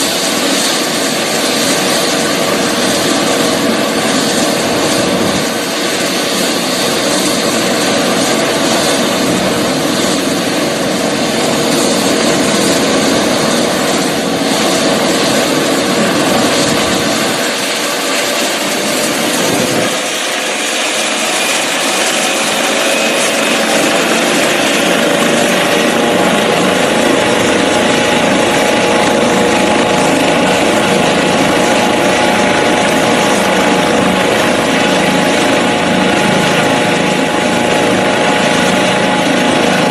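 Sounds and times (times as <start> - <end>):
helicopter engines and rotor: 0.0 - 39.9.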